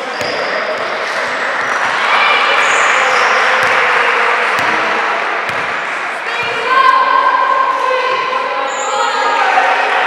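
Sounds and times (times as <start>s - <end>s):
crowd noise in gym: 0.0s - 10.0s
basketball bouncing: 3.6s - 3.9s, 4.6s - 5.8s.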